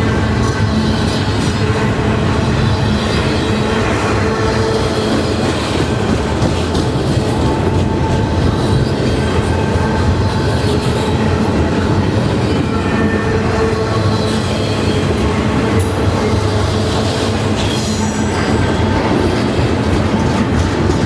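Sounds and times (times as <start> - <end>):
freight train rolling past: 0.0 - 21.0
wheels clickety-clack: 0.0 - 21.0.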